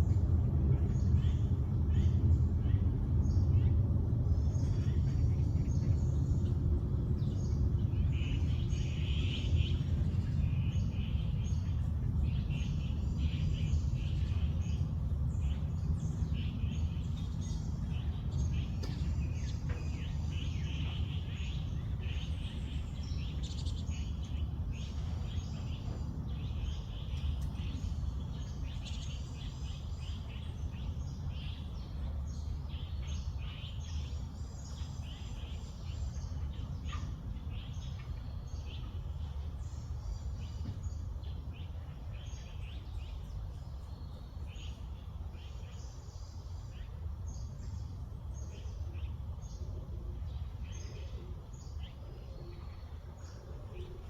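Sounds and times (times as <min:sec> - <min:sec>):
small birds chirping chorus: 0:00.0 - 0:54.0
steady low rumble: 0:00.0 - 0:54.0.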